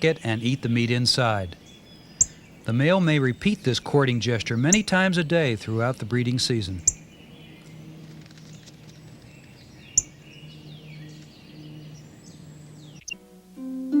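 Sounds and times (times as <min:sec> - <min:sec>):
songbirds chirping: 0:00.0 - 0:13.5
low steady hum: 0:00.0 - 0:14.0
harp music: 0:10.2 - 0:14.0.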